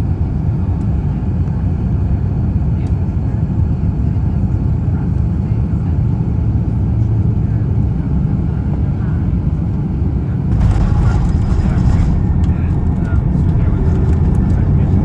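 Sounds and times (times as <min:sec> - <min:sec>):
low rumble in aircraft cabin: 0:00.0 - 0:15.0.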